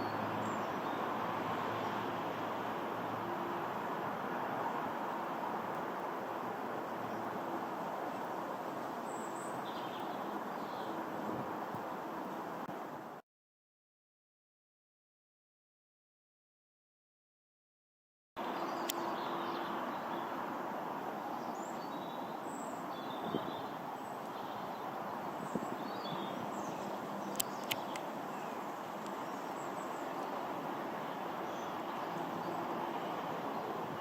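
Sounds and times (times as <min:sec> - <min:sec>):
distant aeroplane roar: 0:00.0 - 0:12.7, 0:18.4 - 0:34.0
small birds chirping faintly: 0:00.0 - 0:12.9, 0:18.4 - 0:34.0
sharp clicks: 0:27.3 - 0:28.1.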